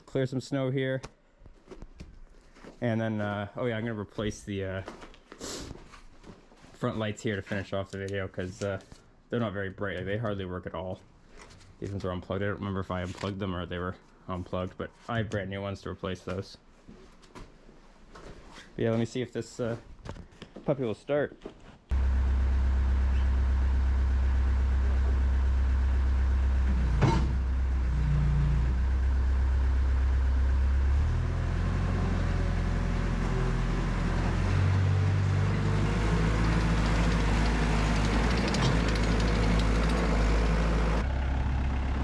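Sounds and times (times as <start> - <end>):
diesel engine running: 21.9 - 42.0.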